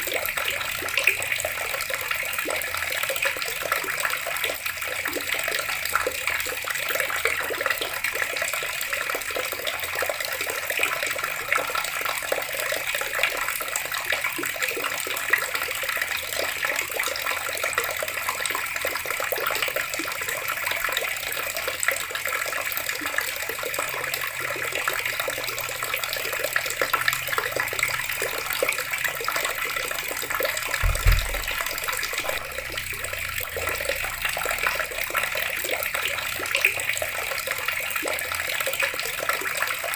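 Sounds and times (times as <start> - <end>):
tap water running and splashing: 0.0 - 39.9
low thump: 30.8 - 33.3.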